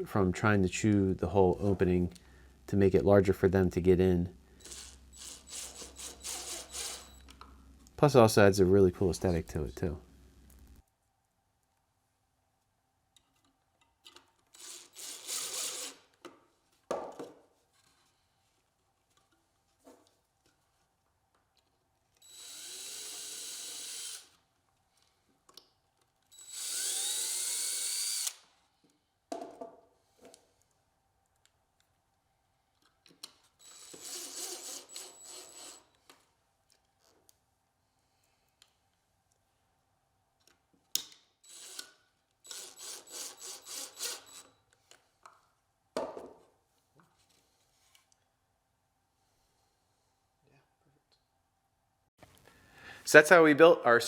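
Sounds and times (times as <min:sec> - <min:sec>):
cordless drill driving screws: 0:04.6 - 0:07.3, 0:14.5 - 0:16.1, 0:22.2 - 0:24.4, 0:26.3 - 0:28.5, 0:33.6 - 0:36.0, 0:41.4 - 0:44.6.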